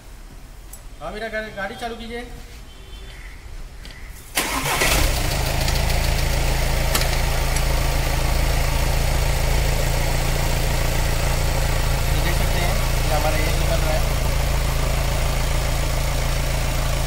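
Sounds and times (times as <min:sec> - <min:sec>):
diesel engine starting and idling: 0:04.3 - 0:17.0.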